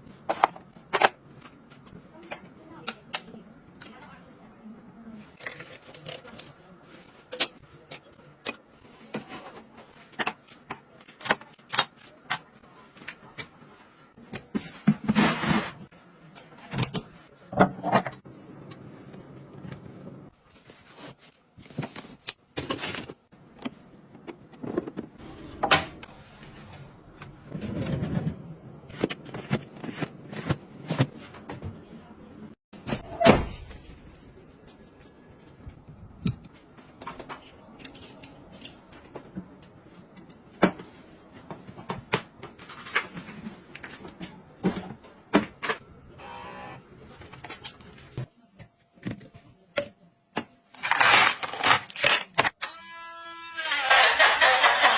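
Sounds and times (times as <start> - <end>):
household objects being handled: 5.1 - 31.9.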